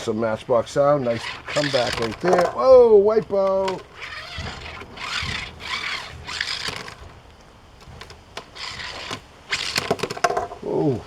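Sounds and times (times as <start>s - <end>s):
toy truck wheels rolling and scraping: 0.0s - 10.6s.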